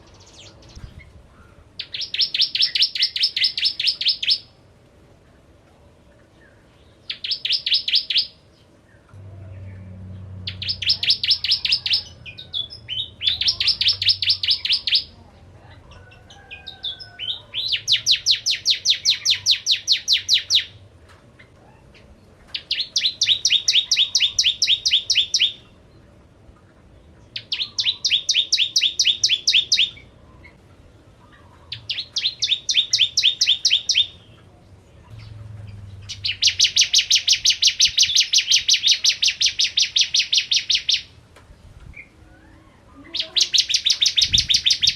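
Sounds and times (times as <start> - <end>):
bird chirping rapidly: 1.8 - 4.5, 7.0 - 8.5, 10.3 - 15.2, 16.9 - 20.8, 22.5 - 25.8, 27.3 - 30.1, 31.7 - 34.4, 35.1 - 41.2, 43.0 - 44.9.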